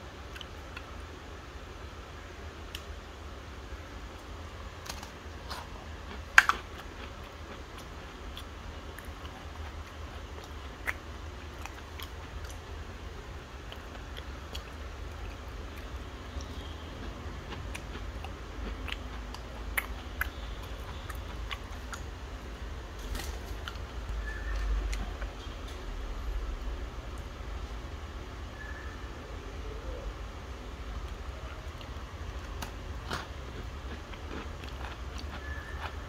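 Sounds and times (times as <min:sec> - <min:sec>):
steady low hum: 0:00.0 - 0:36.0
biscuit crunching: 0:04.8 - 0:12.7, 0:31.0 - 0:36.0.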